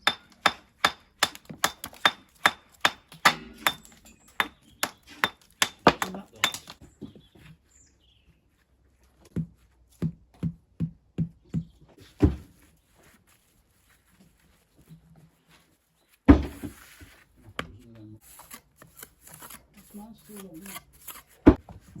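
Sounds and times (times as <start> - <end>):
hand tool knocking stone: 0.0 - 6.8.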